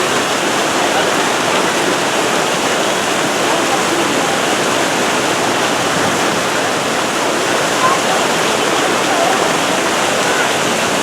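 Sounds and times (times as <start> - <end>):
sea surf washing onto beach: 0.0 - 11.0.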